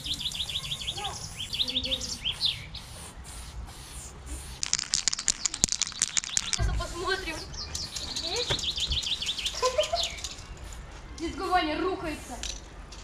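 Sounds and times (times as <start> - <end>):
small birds chirping: 0.0 - 11.7
rapid sharp clicks: 4.6 - 6.7.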